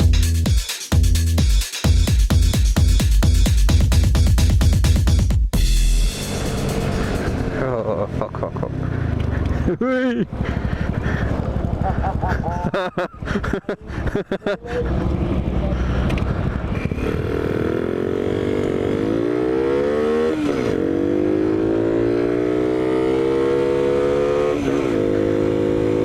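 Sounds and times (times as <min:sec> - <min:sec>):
small motorbike engine accelerating: 0:06.3 - 0:12.4, 0:14.6 - 0:26.0.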